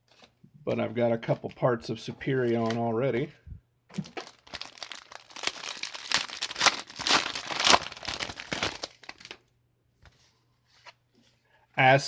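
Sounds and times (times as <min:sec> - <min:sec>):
plastic wrapper crinkling: 0:03.9 - 0:09.5.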